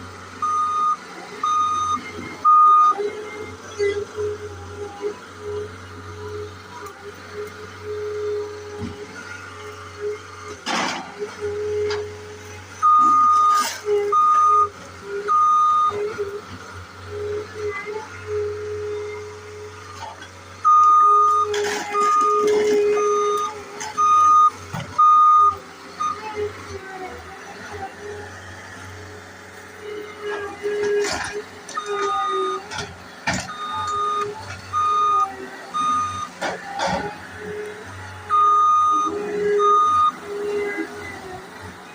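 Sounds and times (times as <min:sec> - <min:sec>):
skid steer engine running: 0:00.0 - 0:41.9
backup alarm beeping: 0:00.4 - 0:03.0, 0:20.6 - 0:26.2, 0:33.5 - 0:35.2, 0:35.8 - 0:36.3.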